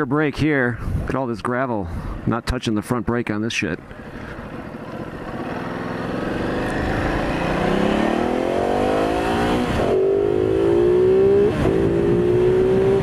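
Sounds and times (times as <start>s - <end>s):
motorcycle engine accelerating: 4.0s - 13.0s.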